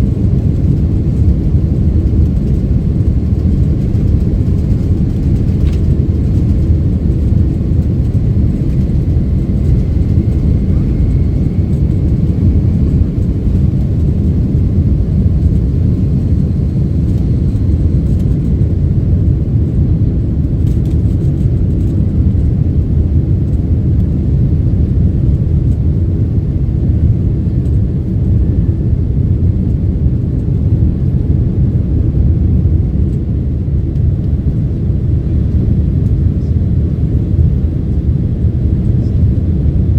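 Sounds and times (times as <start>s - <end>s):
jet engines rumbling in cabin: 0.0s - 39.9s
faint high whine: 7.8s - 18.0s.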